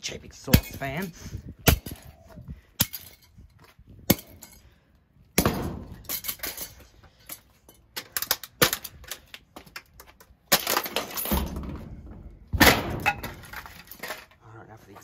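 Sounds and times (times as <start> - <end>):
cracking and clattering: 5.4 - 15.0.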